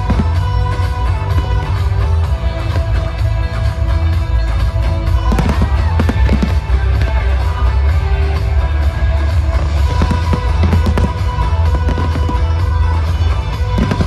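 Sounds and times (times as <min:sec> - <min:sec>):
loud music with heavy bass: 0:00.0 - 0:14.0
firework shells bursting and crackling: 0:09.4 - 0:14.0.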